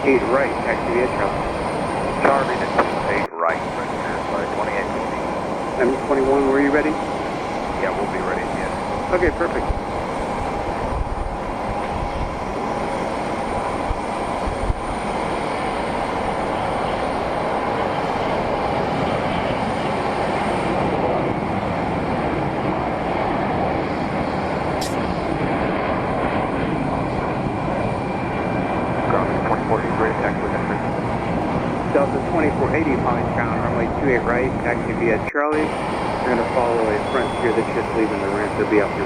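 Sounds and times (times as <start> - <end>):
jet engines running: 0.0 - 39.0
brief click: 24.8 - 25.1.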